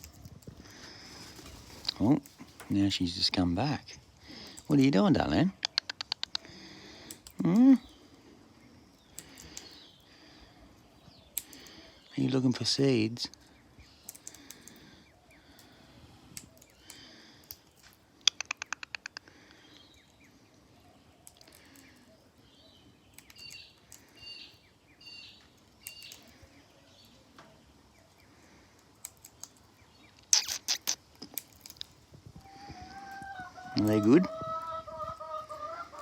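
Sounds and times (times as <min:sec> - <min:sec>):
soft bird chirps: 0:05.3 - 0:36.0
parrot cracking seeds: 0:05.6 - 0:07.6, 0:09.0 - 0:09.9, 0:11.3 - 0:11.8, 0:14.0 - 0:19.9, 0:21.2 - 0:22.0, 0:28.8 - 0:32.1.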